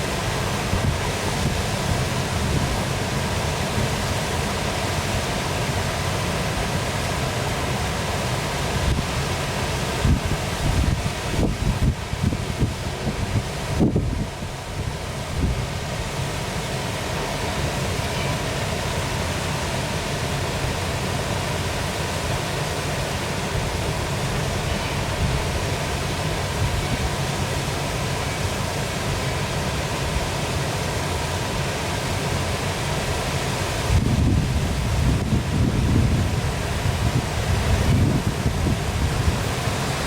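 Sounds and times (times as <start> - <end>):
waterfall rushing: 0.0 - 40.0
wind buffeting microphone: 10.0 - 15.7, 33.8 - 40.0.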